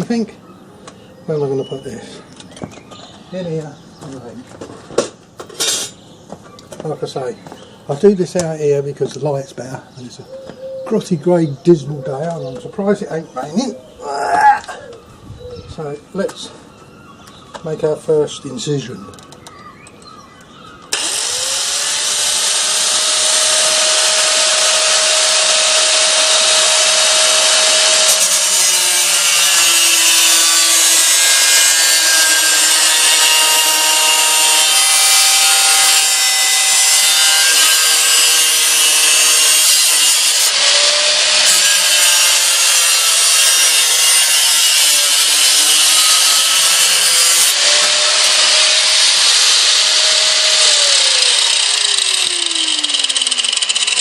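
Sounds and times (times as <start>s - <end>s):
angle grinder cutting metal: 5.6s - 6.0s, 20.9s - 54.0s.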